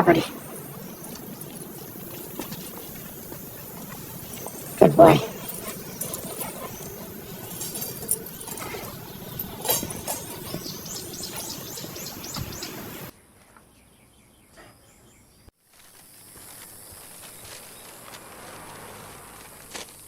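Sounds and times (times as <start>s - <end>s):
birds chirping: 0.0s - 13.1s
steady outdoor background: 0.0s - 20.0s.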